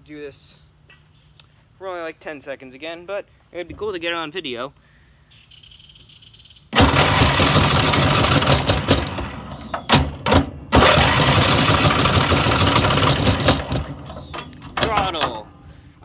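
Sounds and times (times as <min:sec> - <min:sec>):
lawn mower engine running rough: 0:06.8 - 0:16.0.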